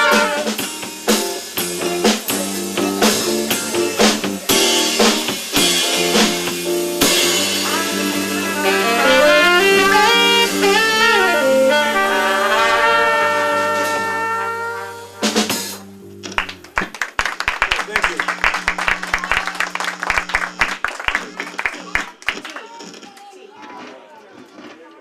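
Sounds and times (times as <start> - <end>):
drum hits: 0.0 - 11.7
horn melody: 0.0 - 16.2.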